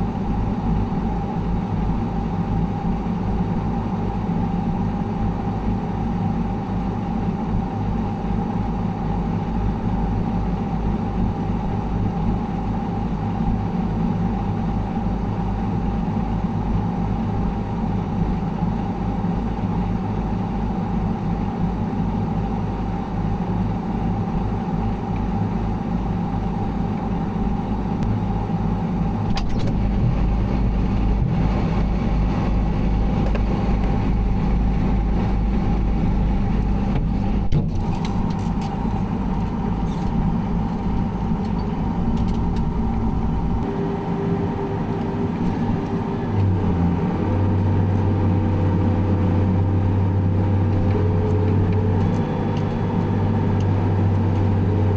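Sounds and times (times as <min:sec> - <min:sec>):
heavy machinery engine running: 0:24.6 - 0:54.9.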